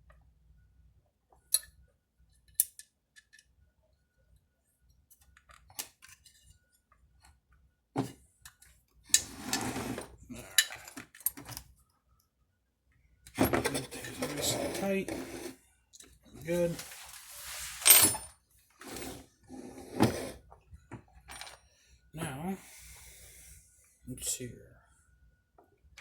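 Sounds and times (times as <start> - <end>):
metal parts clicking and clinking: 2.5 - 3.4, 10.5 - 11.6, 21.3 - 21.6.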